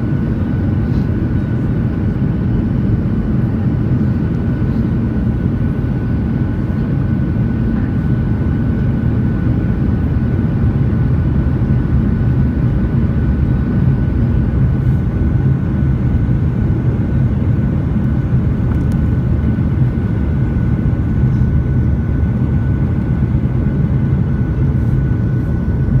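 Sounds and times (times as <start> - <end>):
aircraft engine and airflow rumble: 0.0 - 26.0.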